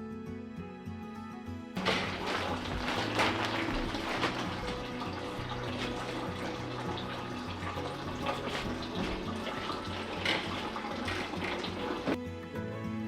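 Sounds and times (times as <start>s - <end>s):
soft background music: 0.0s - 13.0s
running water from a tap: 1.8s - 12.2s.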